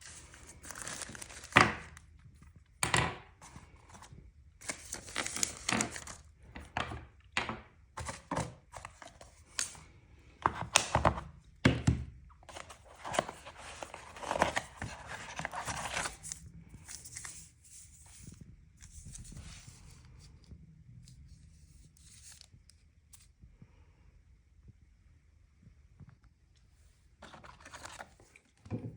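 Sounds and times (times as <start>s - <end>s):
packaging rustling and tearing: 0.0s - 2.0s, 4.6s - 6.8s, 12.5s - 19.4s, 27.2s - 28.3s.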